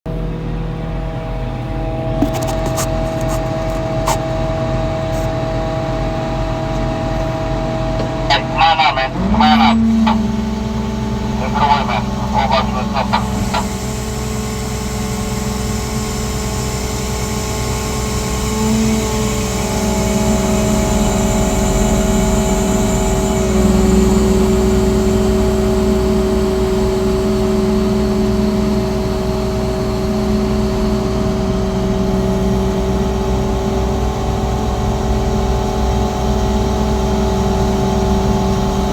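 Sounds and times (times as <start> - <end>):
crane engine running: 0.1 - 38.9
short honk-like squawks: 2.2 - 4.4, 8.0 - 10.4, 11.2 - 13.8.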